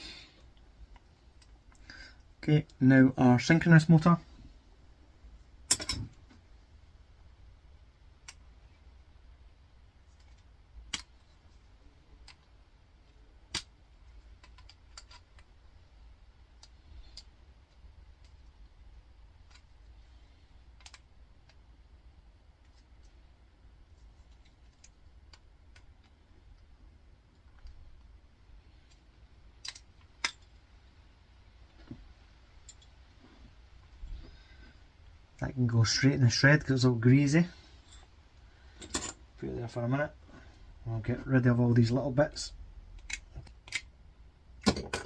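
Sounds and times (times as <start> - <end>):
small parts clicking and tapping: 10.0 - 11.6, 12.2 - 15.6, 16.4 - 21.7, 23.9 - 30.7, 31.7 - 33.1, 42.9 - 44.0
small clicks and taps: 20.8 - 21.6.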